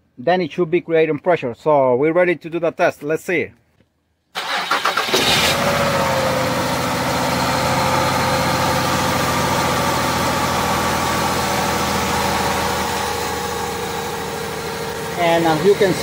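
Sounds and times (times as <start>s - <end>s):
car engine idling: 5.3s - 16.0s.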